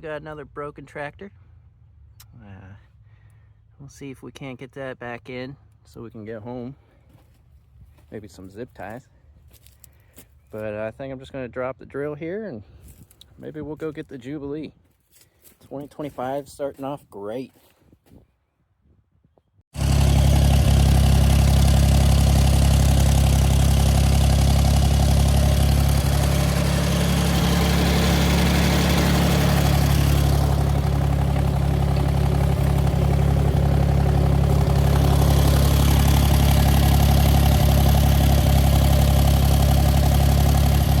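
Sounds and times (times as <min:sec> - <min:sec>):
tractor engine running: 0:19.8 - 0:41.0.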